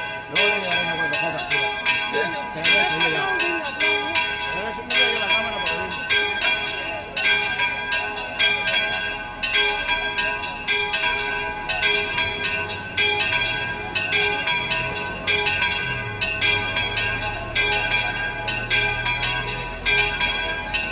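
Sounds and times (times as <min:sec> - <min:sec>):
church bells ringing: 0:00.0 - 0:20.9.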